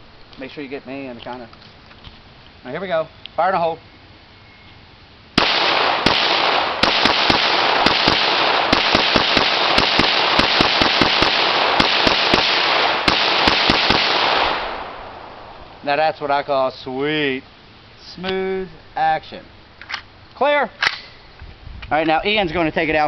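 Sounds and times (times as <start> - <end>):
rapid pistol shots: 5.4 - 15.2.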